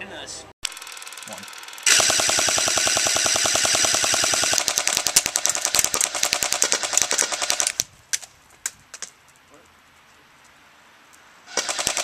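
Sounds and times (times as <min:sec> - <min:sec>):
airsoft machine gun firing: 0:00.6 - 0:07.8, 0:11.5 - 0:12.0.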